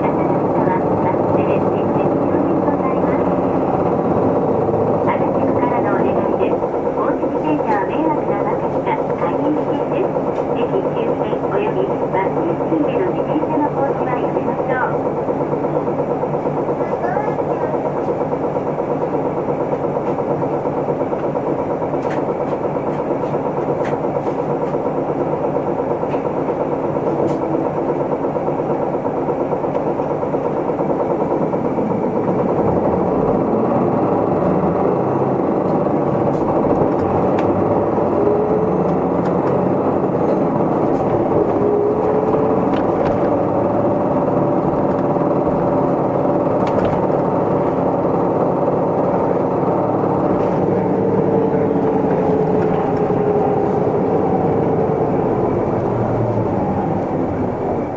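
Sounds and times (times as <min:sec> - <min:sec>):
bus diesel engine running: 0:00.0 - 0:57.9
cabin rattles and clicks: 0:31.2 - 0:56.8.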